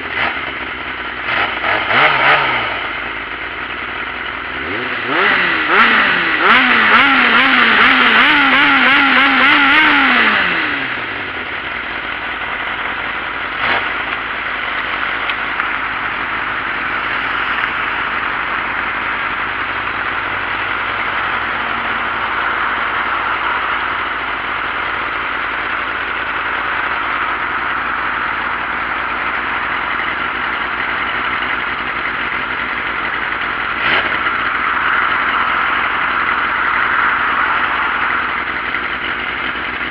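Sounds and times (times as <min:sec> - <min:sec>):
motorbike engine revving: 0:00.0 - 0:39.9
steady rushing noise: 0:14.2 - 0:25.5, 0:33.7 - 0:39.7.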